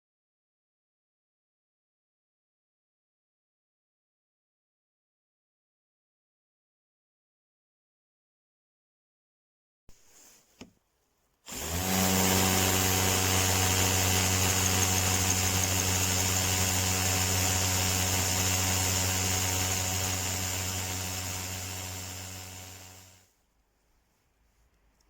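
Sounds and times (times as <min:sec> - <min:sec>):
drill motor running: 0:11.5 - 0:23.2.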